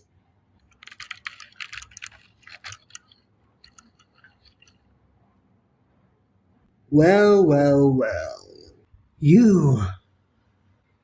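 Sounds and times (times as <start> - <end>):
small clicks and crackles: 0.6 - 5.0.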